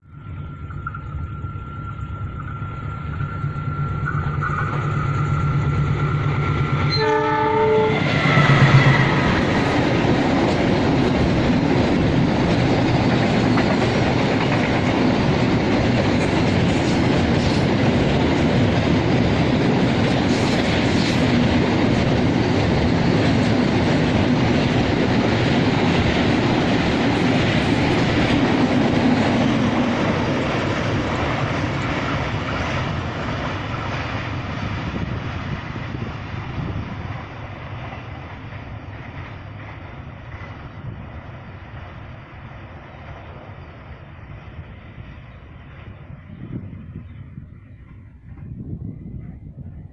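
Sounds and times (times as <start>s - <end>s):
freight train passing: 0.0s - 49.9s
train horn blast: 6.9s - 9.2s.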